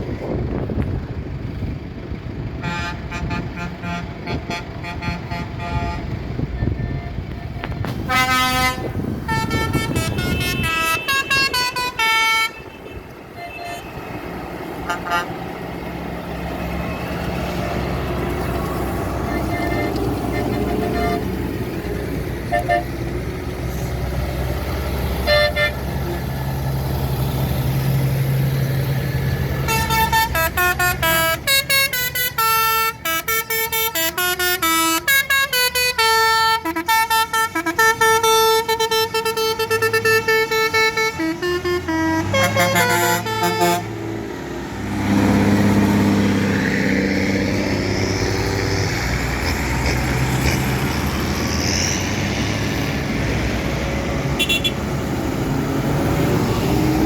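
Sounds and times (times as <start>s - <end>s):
tractor engines running: 0.0s - 57.0s
musical vehicle horn tune: 2.6s - 7.2s, 7.9s - 14.1s, 14.8s - 15.4s, 19.2s - 21.4s, 22.5s - 22.9s, 25.2s - 26.2s, 29.6s - 44.0s, 54.4s - 54.8s.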